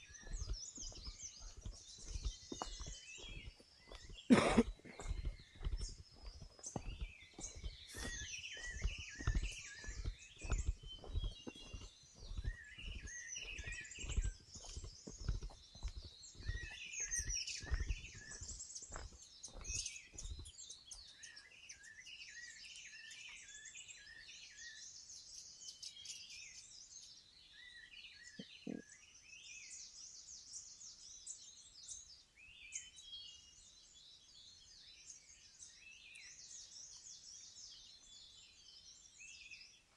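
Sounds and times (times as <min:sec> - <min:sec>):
footsteps on forest trail: 0:00.0 - 0:24.5
birds chirping: 0:00.0 - 0:39.9.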